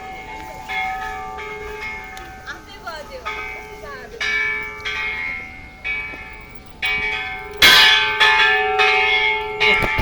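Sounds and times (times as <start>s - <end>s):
bells ringing: 0.0s - 10.0s.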